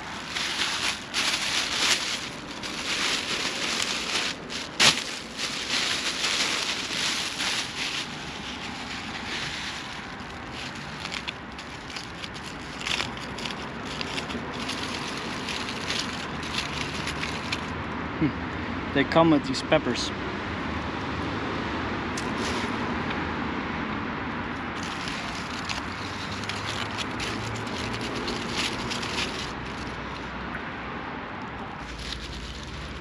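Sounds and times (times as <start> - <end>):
food wrapper crinkling: 0.0 - 17.7, 24.7 - 30.2, 31.8 - 33.0
sharp wrapper crackle: 0.0 - 17.7, 24.7 - 30.3, 31.7 - 33.0.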